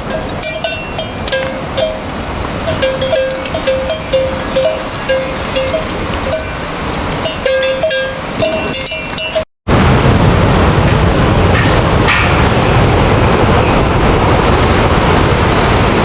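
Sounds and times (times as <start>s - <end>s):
livestock bells clanking: 0.0s - 9.5s.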